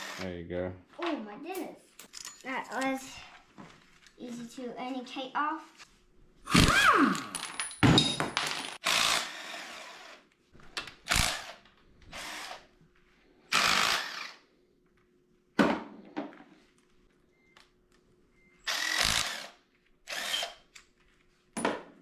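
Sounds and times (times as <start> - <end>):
power drill bursts: 0.0 - 0.3, 8.8 - 10.2, 11.1 - 12.7, 13.5 - 14.4, 18.6 - 20.7.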